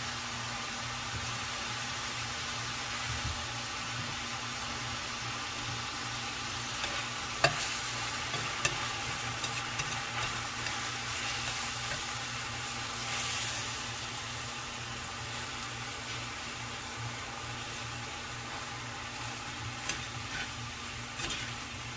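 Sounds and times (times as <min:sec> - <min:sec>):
food sizzling in a frying pan: 0:00.0 - 0:21.9
utensil clacking against pan: 0:08.3 - 0:10.8.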